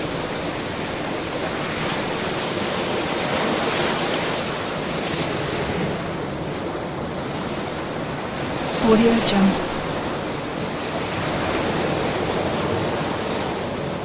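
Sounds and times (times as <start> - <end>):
ocean surf washing: 0.0 - 14.0.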